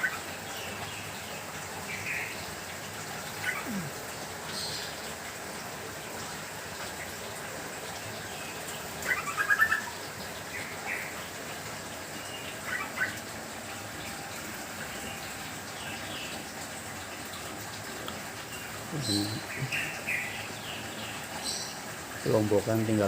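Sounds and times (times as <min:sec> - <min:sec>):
rain hiss: 0:00.0 - 0:23.0
small birds chirping: 0:03.2 - 0:05.1, 0:18.0 - 0:22.5.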